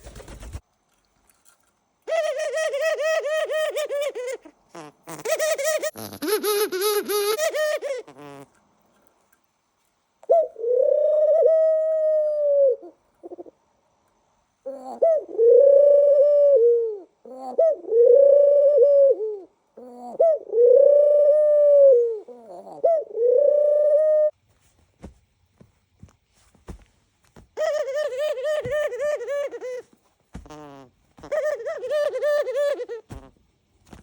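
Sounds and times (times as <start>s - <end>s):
dove cooing: 2.1s - 8.5s, 10.2s - 13.6s, 14.7s - 24.3s, 27.6s - 33.4s.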